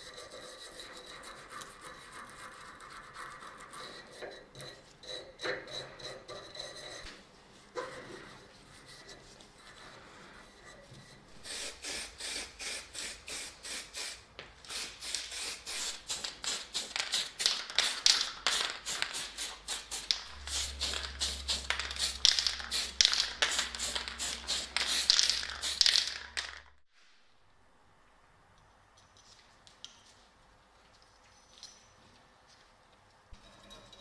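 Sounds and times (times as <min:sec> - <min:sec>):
rhythmic rubbing strokes: 0:14.8 - 0:26.8
low steady hum: 0:20.1 - 0:26.8.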